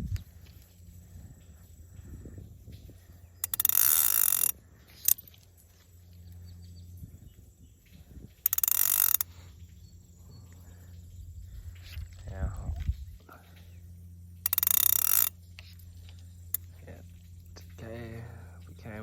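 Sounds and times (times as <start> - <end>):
fly reel ratchet buzzing: 0.0 - 6.4, 8.2 - 10.2, 14.1 - 17.8
sharp click: 3.4 - 5.2, 8.4 - 9.3, 14.5 - 15.8.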